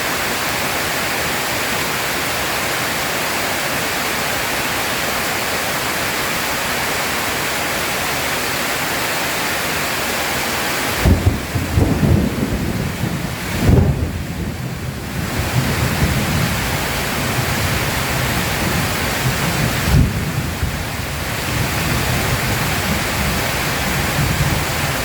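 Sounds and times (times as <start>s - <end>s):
rain hiss: 0.0s - 25.0s
thunder rumbling: 11.0s - 25.0s.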